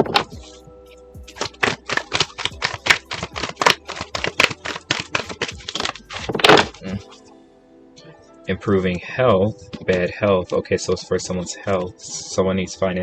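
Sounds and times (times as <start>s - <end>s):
cards being shuffled: 0.0s - 0.6s, 1.3s - 7.2s
background music: 0.0s - 13.0s.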